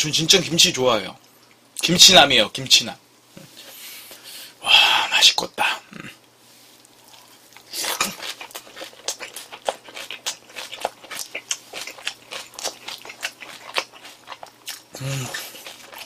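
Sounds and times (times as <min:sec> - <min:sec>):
wet chewing mouth clicks: 0:06.8 - 0:16.0.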